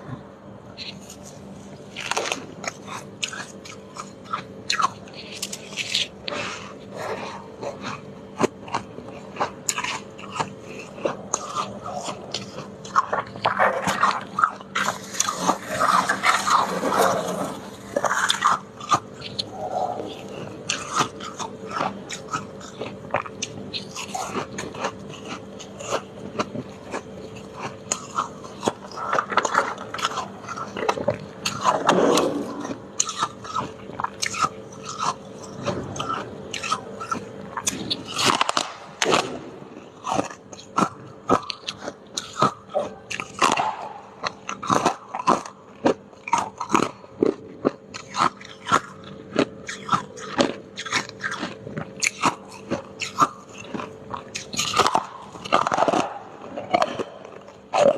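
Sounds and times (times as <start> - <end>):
faint steady hum: 0.0 - 57.9
ice crunching being chewed: 0.0 - 57.9.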